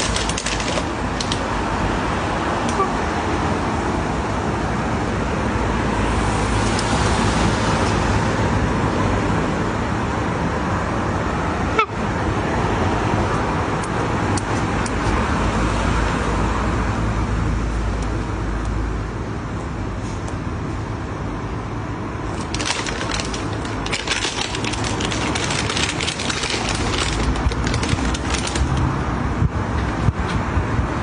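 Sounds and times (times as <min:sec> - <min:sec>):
road traffic: 0:00.0 - 0:31.0.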